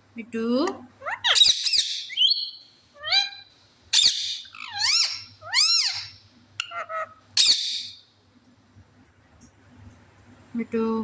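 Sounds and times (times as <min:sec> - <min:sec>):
parrot screeching: 0:01.0 - 0:08.0
parrot whistled calls: 0:01.0 - 0:08.0.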